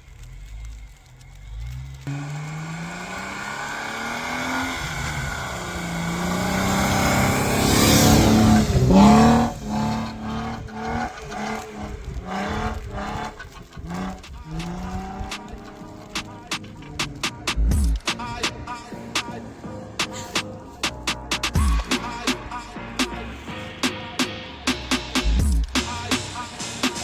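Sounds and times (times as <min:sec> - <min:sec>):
vehicle engine revving: 0:00.0 - 0:27.0.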